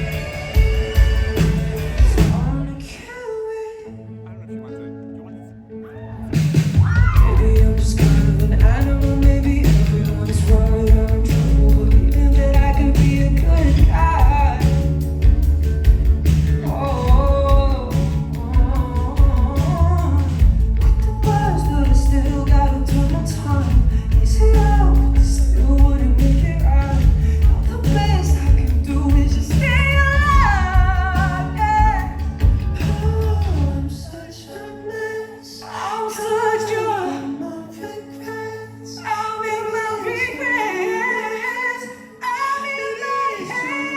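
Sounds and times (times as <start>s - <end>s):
live pop-rock band playing: 0.0s - 3.0s, 6.3s - 34.2s
person singing: 0.0s - 43.9s.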